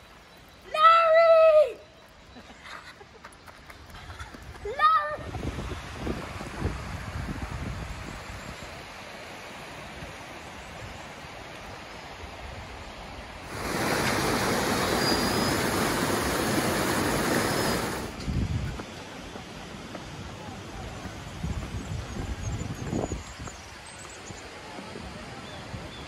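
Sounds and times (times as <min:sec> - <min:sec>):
waterfall rushing: 0:13.4 - 0:18.2.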